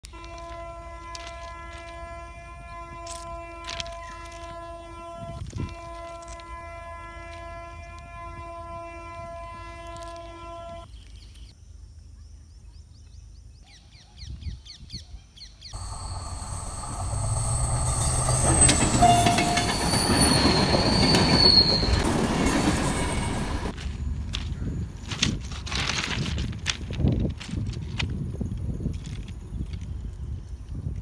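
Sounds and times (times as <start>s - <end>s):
steady pitched tone: 15.8s - 23.7s
wheel squeal: 15.8s - 23.7s
diesel train passing: 15.8s - 23.8s.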